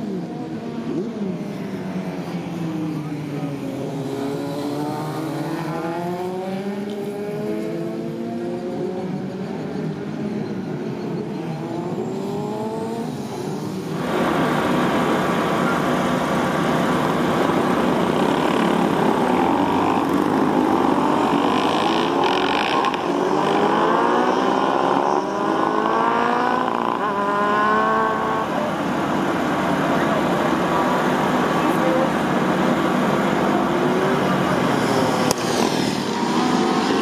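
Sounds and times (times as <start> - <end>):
motorcycle engine accelerating: 11.5 - 37.0.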